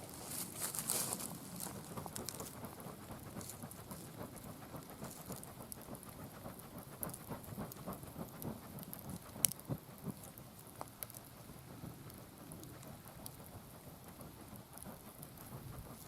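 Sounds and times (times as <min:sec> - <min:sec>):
campfire crackling and popping: 0:00.2 - 0:16.0.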